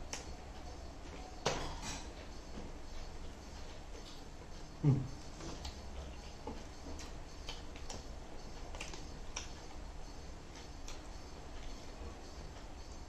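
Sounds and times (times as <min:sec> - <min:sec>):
chewing: 0:00.0 - 0:13.0
wet mouth clicks and smacks: 0:07.4 - 0:08.1.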